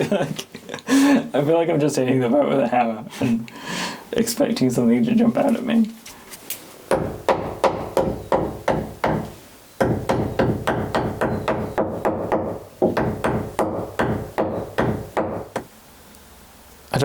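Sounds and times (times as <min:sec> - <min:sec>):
hammer tapping on wood: 0:06.9 - 0:15.7.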